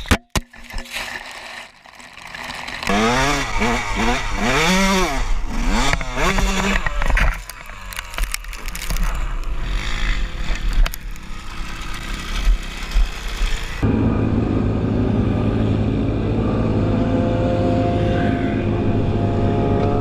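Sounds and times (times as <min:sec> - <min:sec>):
motorcycle engine revving: 0:02.5 - 0:08.3, 0:09.0 - 0:20.0.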